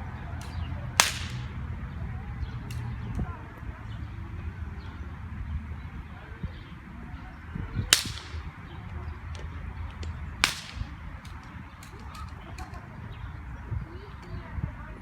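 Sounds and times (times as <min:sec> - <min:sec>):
sharp cracks: 0:00.4 - 0:01.7, 0:07.9 - 0:08.7, 0:09.3 - 0:12.7.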